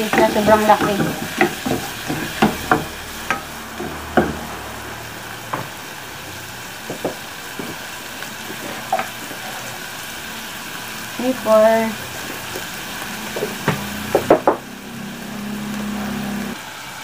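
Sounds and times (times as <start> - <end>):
spatula tapping and scraping pan: 0.0 - 4.5, 8.4 - 9.5
shrimp sizzling in oil: 0.0 - 17.0.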